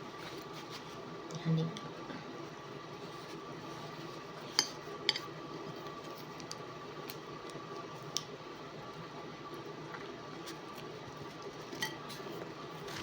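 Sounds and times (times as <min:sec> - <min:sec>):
steady background hum: 0:00.0 - 0:13.0
tableware clinking: 0:11.8 - 0:12.0.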